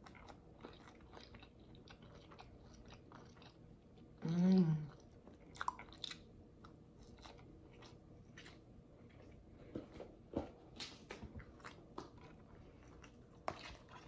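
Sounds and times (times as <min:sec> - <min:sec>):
person humming mmm: 0:04.2 - 0:05.0.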